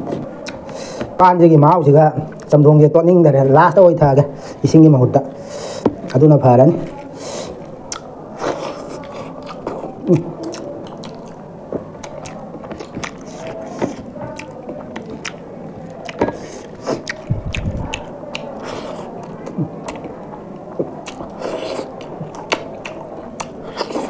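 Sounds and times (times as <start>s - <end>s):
people chewing with mouth smacks: 0.0s - 1.2s, 2.3s - 2.5s, 6.9s - 24.0s.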